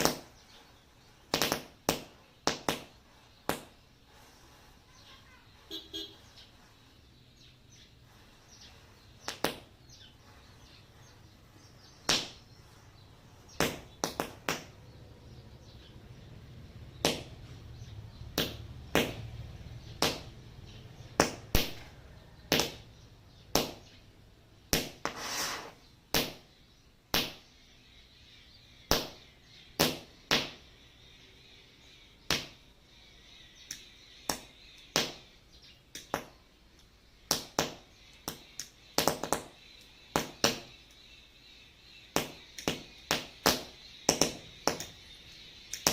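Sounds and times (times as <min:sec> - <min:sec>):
firecrackers popping with fizz: 0:01.3 - 0:03.8
long hiss: 0:25.0 - 0:25.8.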